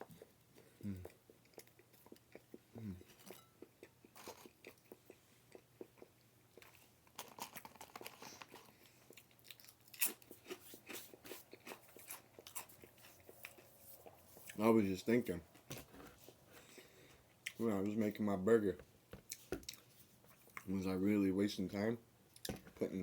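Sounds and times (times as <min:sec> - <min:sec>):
person chewing crunchy food: 0:00.0 - 0:14.6, 0:19.2 - 0:20.7.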